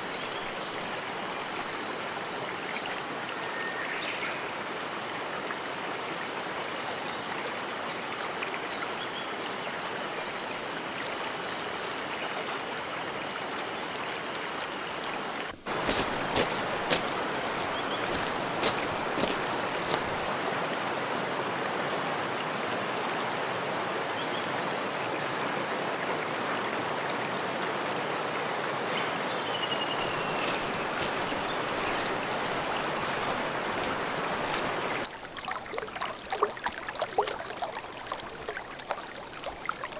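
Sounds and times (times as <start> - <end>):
mountain stream rushing: 0.0 - 2.0, 15.1 - 20.8, 28.6 - 39.9
small birds chirping: 15.5 - 20.4, 29.4 - 39.9.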